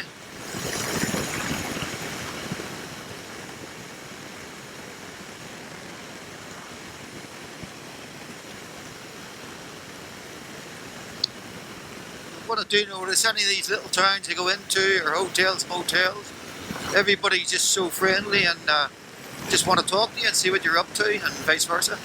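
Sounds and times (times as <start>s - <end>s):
wind rushing: 0.0s - 3.8s, 13.2s - 17.3s, 18.0s - 22.0s
road noise: 0.0s - 4.4s, 10.6s - 22.0s.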